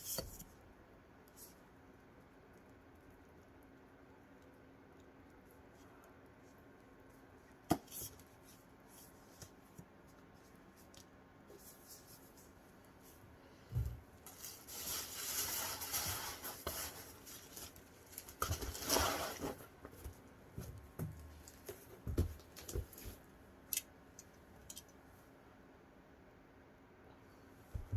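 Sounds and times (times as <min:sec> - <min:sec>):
crinkly packaging rustling: 0:14.2 - 0:20.2.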